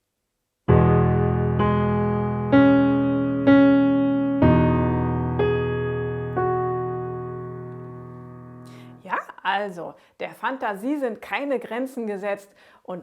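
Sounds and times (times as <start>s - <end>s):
piano playing slow melody: 0.7s - 9.0s.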